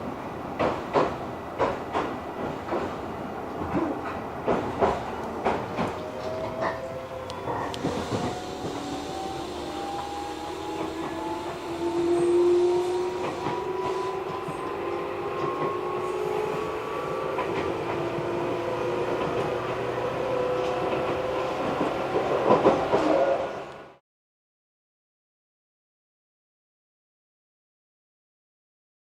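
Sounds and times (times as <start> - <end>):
electric train motor whine: 5.9 - 21.1.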